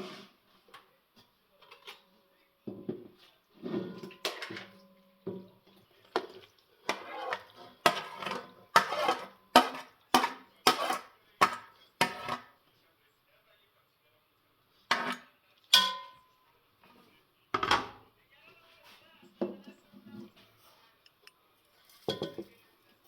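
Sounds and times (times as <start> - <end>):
utensils clinking against pots: 3.6 - 12.5, 14.9 - 16.4, 21.9 - 22.5.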